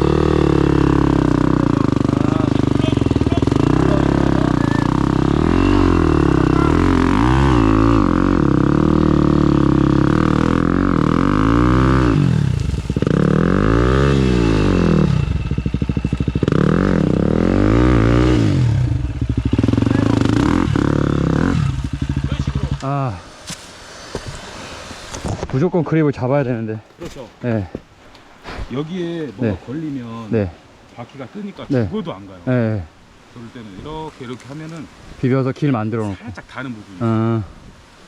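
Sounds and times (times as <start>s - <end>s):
motorcycle engine revving hard: 0.0s - 23.3s.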